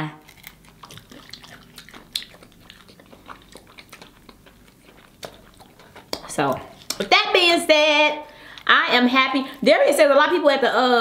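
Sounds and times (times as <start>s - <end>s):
people chewing chicken wings: 0.2s - 7.1s.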